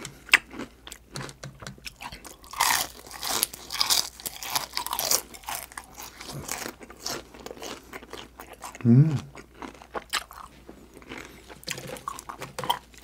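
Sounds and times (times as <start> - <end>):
crunching fried chicken skin: 0.3 - 8.7.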